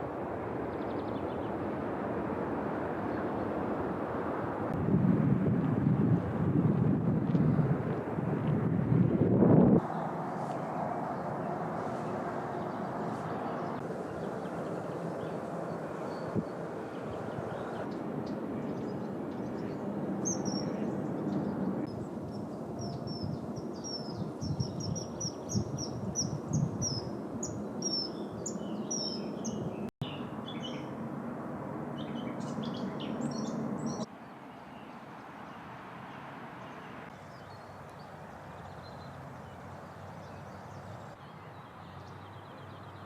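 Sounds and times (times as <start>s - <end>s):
songbirds chirping: 9.8s - 31.0s, 31.9s - 43.0s.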